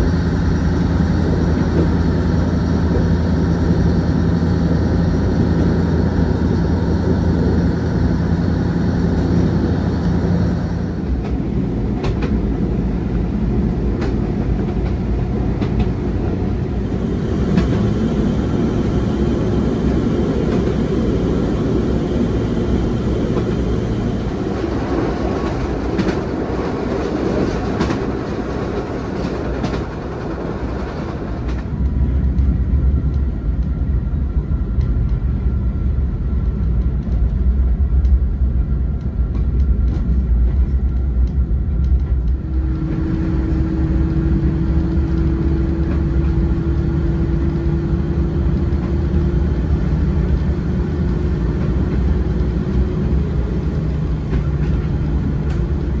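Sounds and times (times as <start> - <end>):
deep steady drone: 0.0 - 27.6, 30.0 - 56.0
railcar rumble and rattle: 0.0 - 56.0
wheels clicking over rail joints: 11.0 - 16.7, 23.1 - 33.7.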